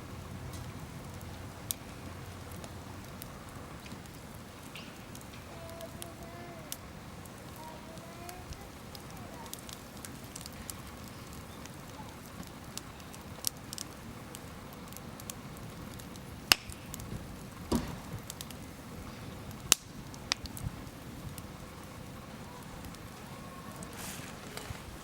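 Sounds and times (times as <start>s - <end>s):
campfire crackling and popping: 0.0s - 25.0s
low steady rush: 0.0s - 25.0s
dull thump: 17.7s - 18.2s.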